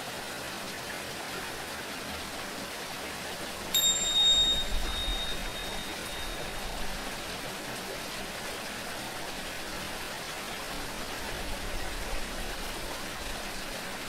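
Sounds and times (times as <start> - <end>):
water running: 3.5 - 14.0.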